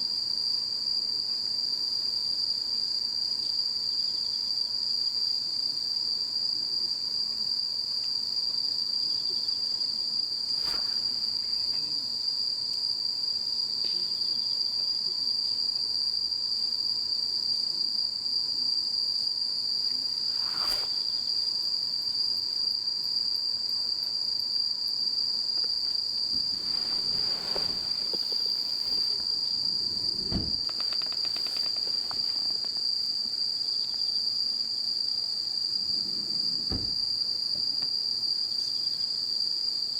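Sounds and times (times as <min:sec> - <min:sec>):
crickets chirping chorus: 0:00.0 - 0:39.9
faint clicks and knocks: 0:26.4 - 0:32.8.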